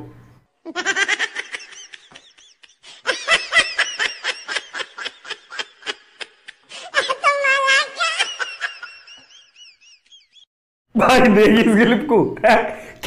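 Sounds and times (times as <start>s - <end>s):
high-pitched laughter: 0.7s - 10.4s.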